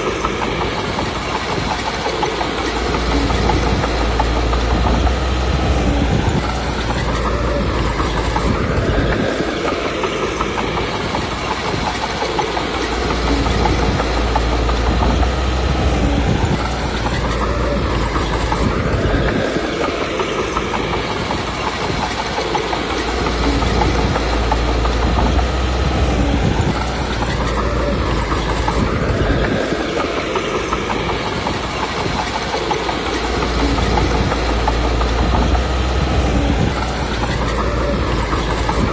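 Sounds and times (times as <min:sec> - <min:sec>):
bulldozer diesel engine working: 0:00.0 - 0:38.9.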